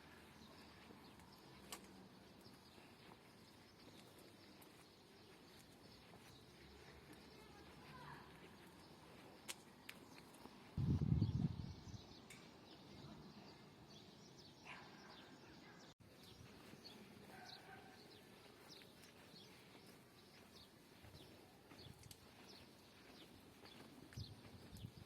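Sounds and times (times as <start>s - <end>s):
faint small birds chirping: 0.0s - 25.0s.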